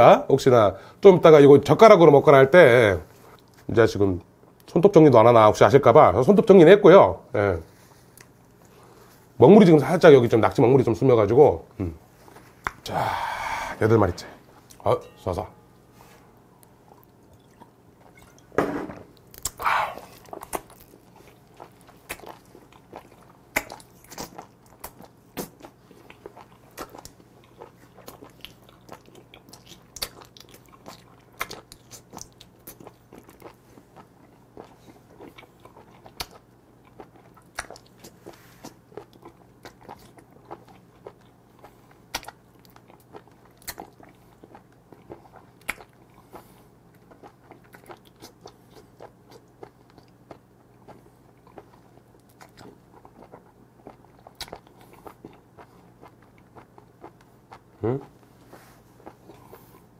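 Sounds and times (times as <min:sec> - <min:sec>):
loud gulps: 0:12.8 - 0:14.5, 0:19.4 - 0:20.4.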